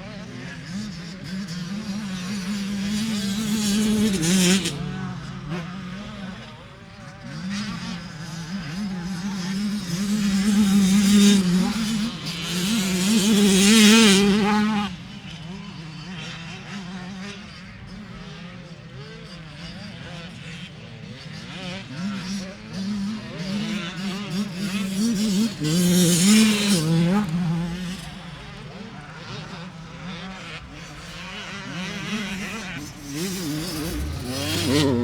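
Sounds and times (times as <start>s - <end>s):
racing engines passing at high revs: 0.0s - 35.0s
background engine drone: 20.8s - 35.0s.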